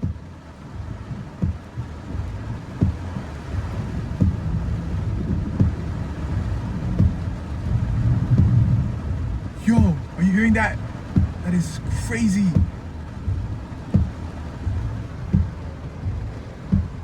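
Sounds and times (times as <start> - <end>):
heavy rain on a car: 0.0 - 17.0
windshield wiper thumping: 0.0 - 17.0
low thunder rumble: 3.6 - 10.1.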